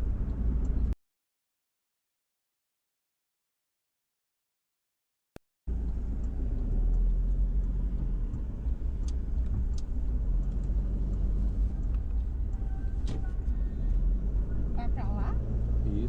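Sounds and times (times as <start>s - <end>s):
car engine and road rumble: 0.0s - 1.0s, 5.7s - 16.0s
faint clicks: 5.8s - 14.0s.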